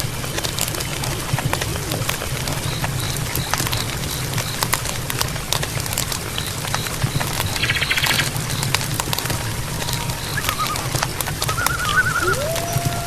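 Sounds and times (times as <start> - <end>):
warbling animal call: 7.6 - 13.0.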